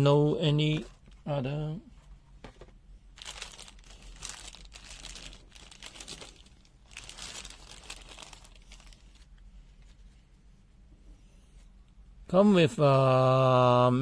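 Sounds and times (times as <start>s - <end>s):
packaging crinkling: 3.2s - 9.4s.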